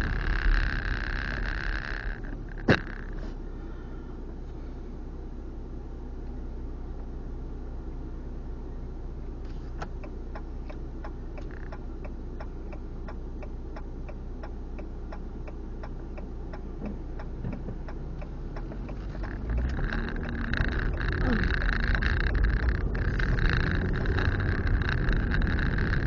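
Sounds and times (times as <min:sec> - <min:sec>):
car engine idling: 0:00.0 - 0:26.0
turn signal clicking: 0:09.6 - 0:26.0.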